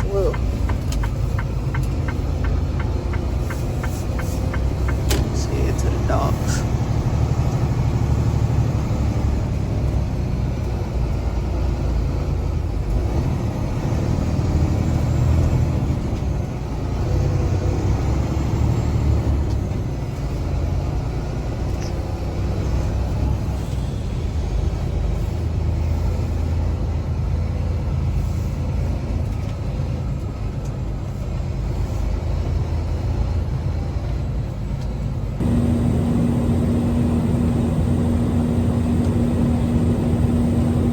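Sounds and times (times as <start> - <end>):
diesel truck engine rumbling: 0.0 - 40.9
steady hum: 35.4 - 40.9.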